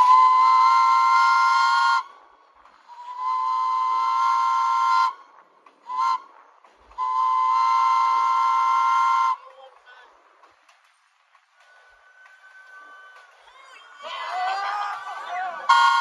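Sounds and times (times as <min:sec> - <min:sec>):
train horn blasts: 0:00.0 - 0:02.1, 0:03.0 - 0:05.2, 0:07.0 - 0:09.4, 0:15.7 - 0:16.0.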